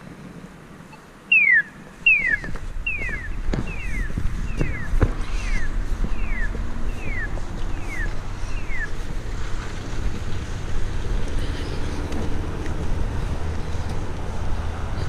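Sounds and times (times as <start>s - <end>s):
street traffic rumble: 0.0s - 15.0s
crossing signal falling chirps: 0.9s - 9.0s.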